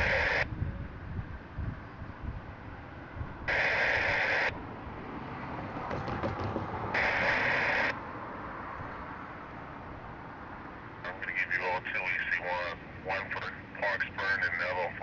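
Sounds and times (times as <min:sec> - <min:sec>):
radio static hiss bursts: 0:00.0 - 0:00.5, 0:03.5 - 0:04.5, 0:07.0 - 0:07.9, 0:11.1 - 0:15.0.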